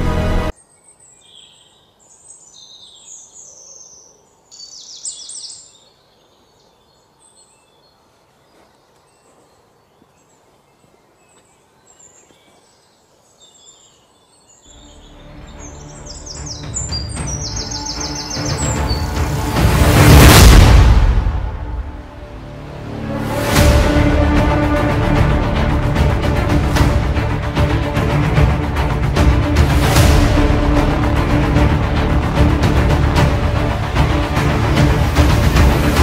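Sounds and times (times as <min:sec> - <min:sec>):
music: 0:00.0 - 0:00.5, 0:14.7 - 0:36.0
birds chirping: 0:00.0 - 0:20.1
bird trill: 0:13.5 - 0:19.3.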